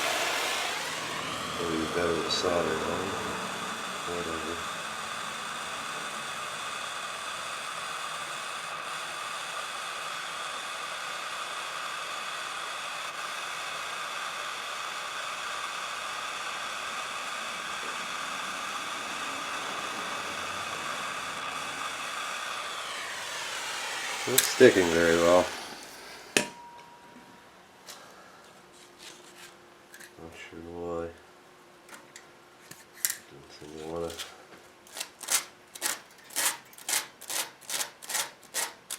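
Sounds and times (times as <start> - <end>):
torch flame hissing: 0.0 - 26.5.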